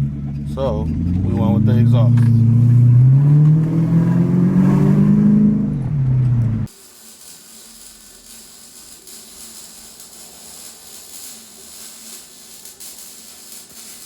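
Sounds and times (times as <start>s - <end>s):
loud car engine running: 0.0s - 6.7s
steady hiss: 6.7s - 14.0s.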